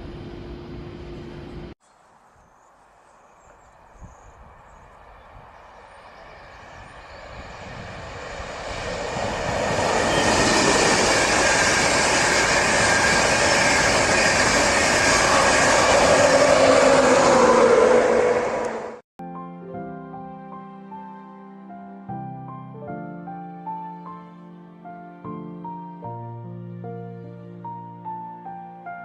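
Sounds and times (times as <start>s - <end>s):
train passing at speed: 2.9s - 19.0s.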